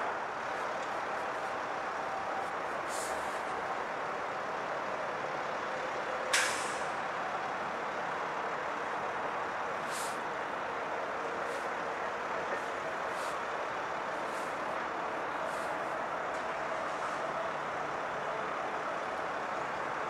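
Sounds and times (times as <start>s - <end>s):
air brake hiss: 2.9s - 3.4s, 6.3s - 6.9s, 9.8s - 10.2s.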